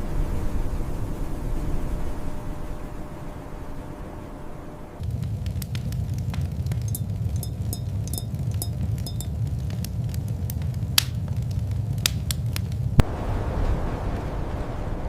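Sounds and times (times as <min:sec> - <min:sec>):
low rumble of fire: 0:00.0 - 0:15.0
fire crackling and popping: 0:05.0 - 0:15.0.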